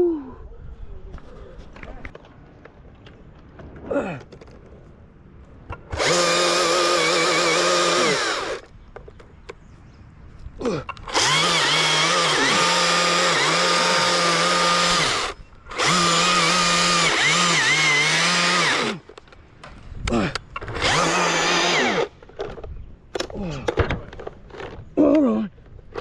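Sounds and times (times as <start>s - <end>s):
chainsaw revving: 5.9s - 8.6s, 11.1s - 19.1s, 20.7s - 22.2s.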